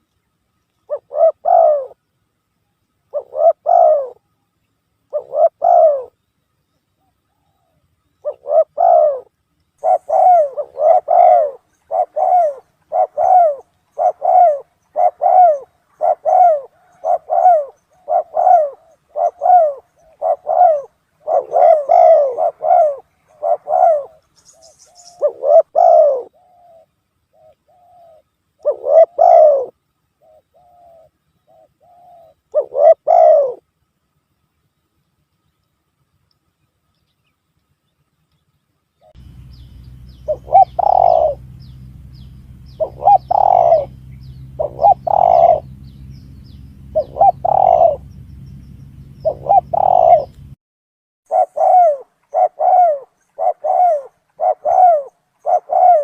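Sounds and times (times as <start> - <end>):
dove cooing: 0.9 - 2.0, 3.1 - 4.3, 5.1 - 6.2, 7.0 - 33.7, 39.0 - 50.6, 51.3 - 56.0.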